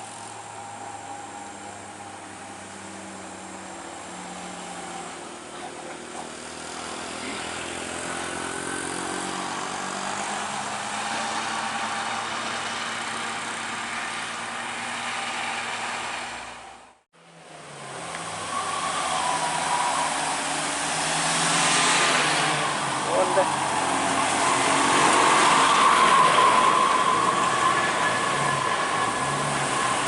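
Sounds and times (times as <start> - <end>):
truck engine under load: 0.0 - 30.0.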